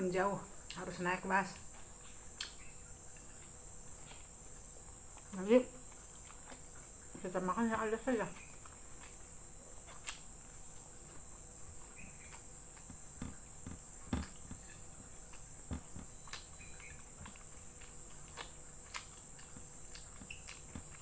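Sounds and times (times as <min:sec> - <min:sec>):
person chewing and smacking: 0:01.6 - 0:07.2, 0:08.3 - 0:21.0.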